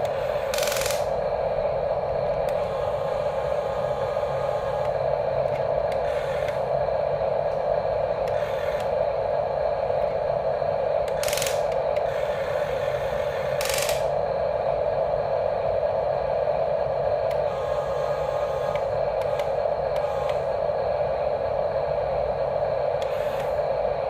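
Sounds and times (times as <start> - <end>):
small gear motors whirring: 0.0 - 1.2, 2.4 - 6.7, 8.2 - 9.1, 11.1 - 14.2, 17.3 - 20.6, 23.0 - 23.8
hissing bursts: 0.0 - 1.4, 22.9 - 24.0.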